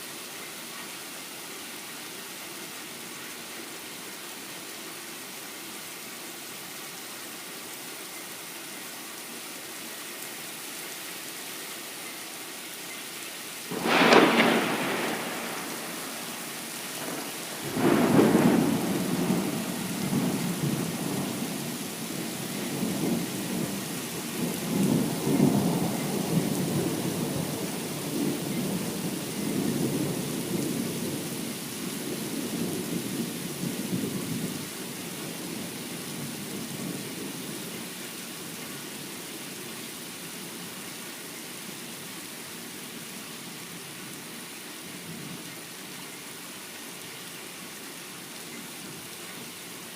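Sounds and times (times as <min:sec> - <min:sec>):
steady rain: 0:00.0 - 0:49.9
sharp thunderclap: 0:13.7 - 0:21.4
rolling thunder: 0:13.7 - 0:31.3.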